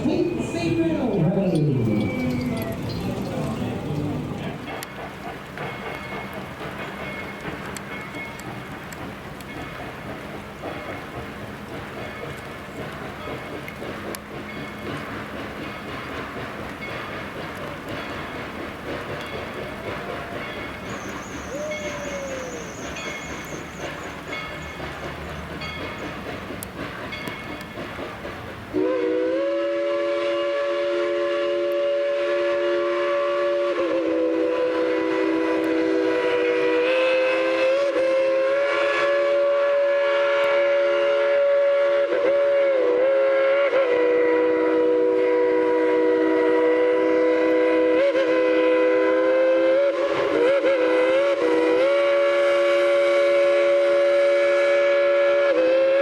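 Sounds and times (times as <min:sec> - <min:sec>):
steam locomotive chime whistle: 0:00.0 - 0:08.5, 0:19.2 - 0:26.2, 0:28.7 - 0:56.0.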